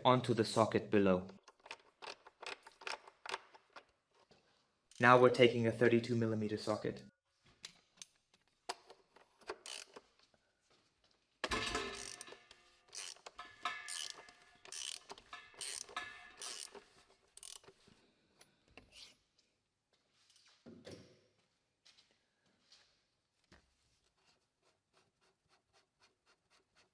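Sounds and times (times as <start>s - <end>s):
ratchet wrench clicking: 9.5s - 10.0s, 11.6s - 16.8s, 17.4s - 17.8s.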